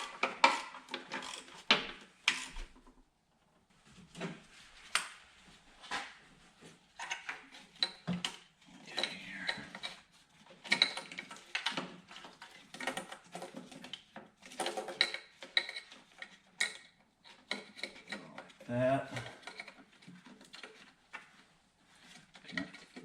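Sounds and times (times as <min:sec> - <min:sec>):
tools and metal parts clinking: 0:10.6 - 0:18.3.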